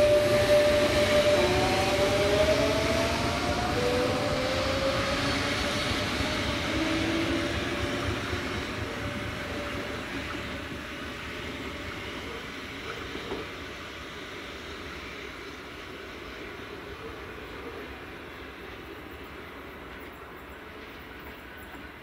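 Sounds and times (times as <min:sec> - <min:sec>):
whining tones rising in pitch: 0:00.0 - 0:09.6
train rumbling past: 0:00.0 - 0:22.0.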